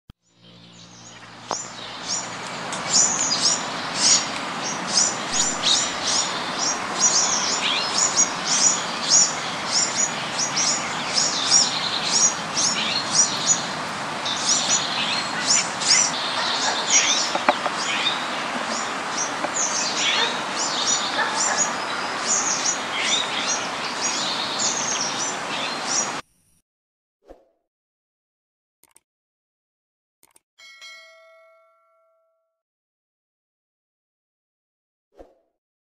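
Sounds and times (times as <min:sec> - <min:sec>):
birds chirping: 0:00.2 - 0:26.2.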